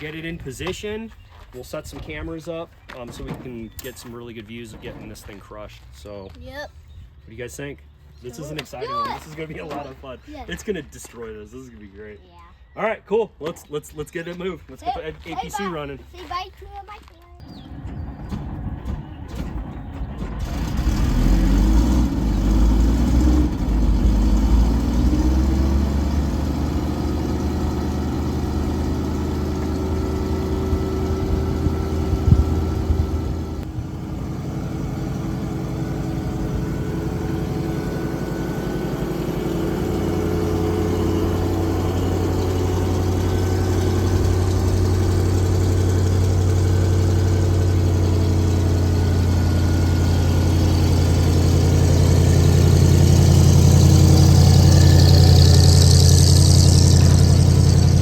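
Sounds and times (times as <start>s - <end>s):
armoured vehicle engine running: 17.4s - 58.0s.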